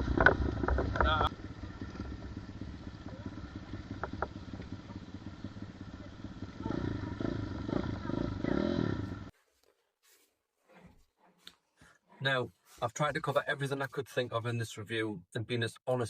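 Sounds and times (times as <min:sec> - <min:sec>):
pit bike engine revving: 0:00.0 - 0:09.3.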